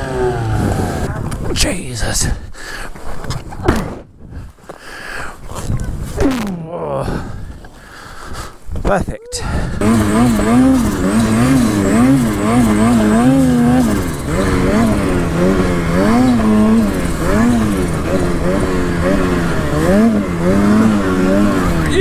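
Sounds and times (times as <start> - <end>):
snowmobile engine revving: 0.0 - 1.2, 5.5 - 7.1, 9.3 - 22.0.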